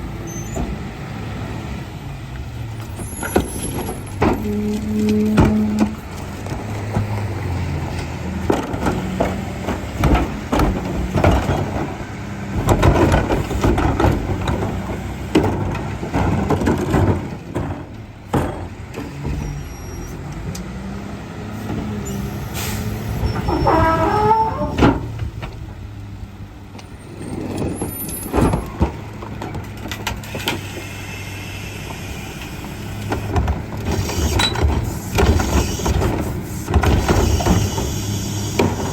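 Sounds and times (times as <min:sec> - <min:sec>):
garbage truck engine running: 0:00.0 - 0:38.9
clanks and thumps of trash: 0:02.9 - 0:19.7, 0:23.1 - 0:25.8, 0:27.2 - 0:30.6, 0:33.1 - 0:38.9
air brake hiss: 0:22.5 - 0:23.0.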